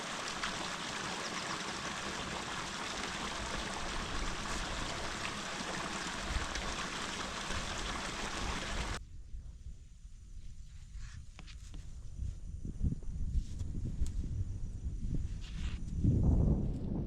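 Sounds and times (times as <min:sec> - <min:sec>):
stream water rushing: 0:00.0 - 0:09.0.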